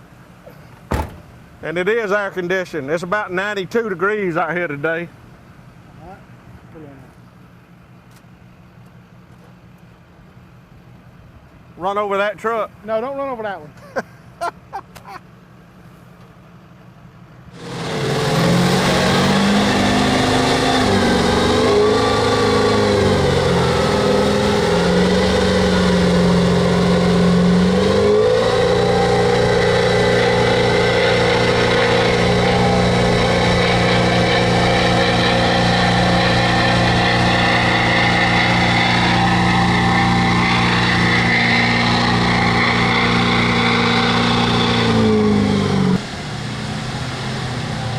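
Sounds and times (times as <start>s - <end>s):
diesel truck engine revving: 17.4s - 47.9s.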